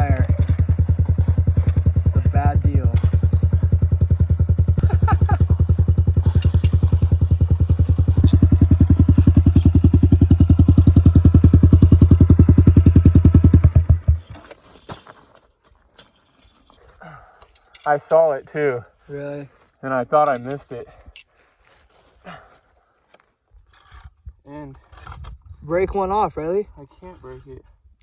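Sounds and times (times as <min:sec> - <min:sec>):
dirt bike engine idling: 0:00.0 - 0:14.4.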